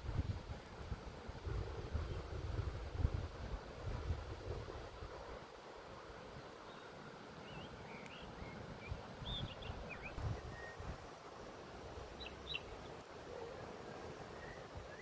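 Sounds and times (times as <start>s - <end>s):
small birds chirping: 6.7s - 10.9s, 12.2s - 13.0s.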